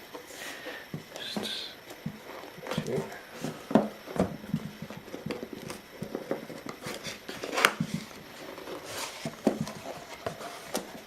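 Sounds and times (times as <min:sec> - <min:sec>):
box handling knocks and rustles: 0:00.9 - 0:11.0.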